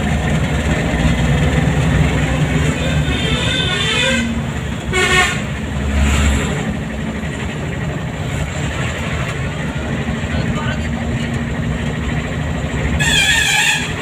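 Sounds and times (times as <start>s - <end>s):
road traffic engines: 0.0s - 14.0s
vehicle horn toot: 2.8s - 5.5s, 13.0s - 14.0s.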